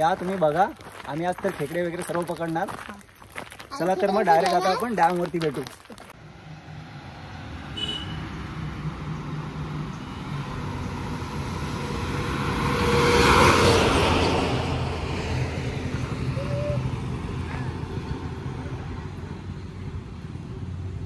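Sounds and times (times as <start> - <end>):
broad rush of noise: 14.0 - 20.8.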